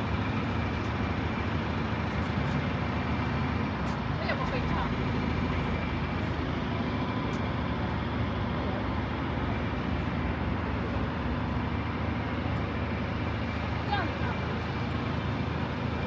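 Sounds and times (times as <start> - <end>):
city road traffic rumble: 0.0 - 16.0.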